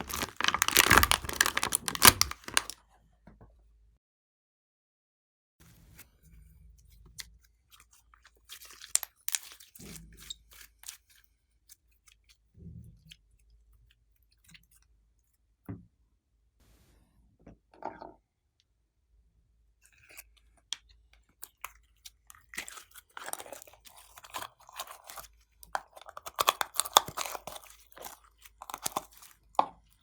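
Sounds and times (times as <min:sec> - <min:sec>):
slime crackling and popping: 0:00.0 - 0:02.8
slime squelching: 0:00.0 - 0:02.8, 0:21.7 - 0:29.5.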